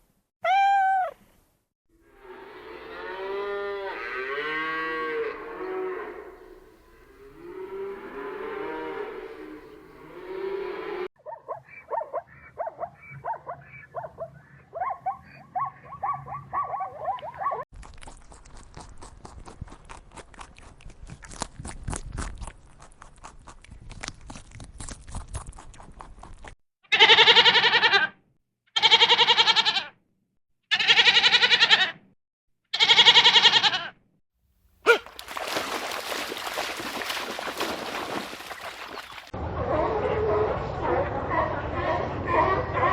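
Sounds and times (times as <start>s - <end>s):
goat bleating: 26.9s - 28.1s, 28.8s - 29.9s, 30.7s - 32.0s, 32.7s - 34.0s.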